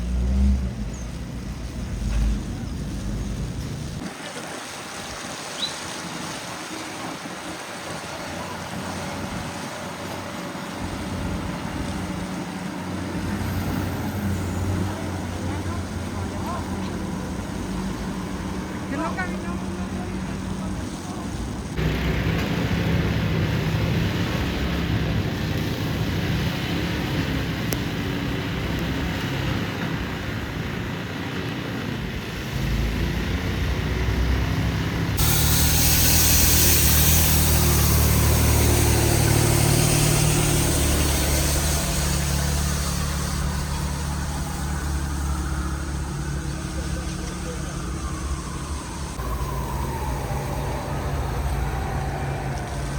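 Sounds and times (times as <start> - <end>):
vehicle engines humming: 0.0 - 4.2, 6.1 - 52.9
loud hiss: 35.2 - 45.4.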